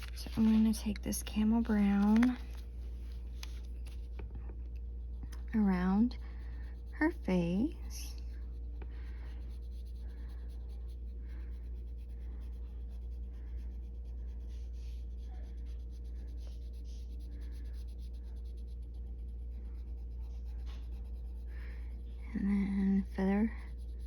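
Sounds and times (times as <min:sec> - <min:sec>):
low hum: 0:00.0 - 0:24.0
pencil scratching on paper: 0:05.6 - 0:24.0.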